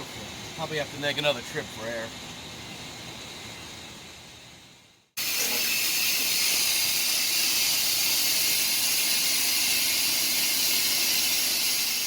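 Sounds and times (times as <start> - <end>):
compressed air hissing into tire: 5.2 - 12.0.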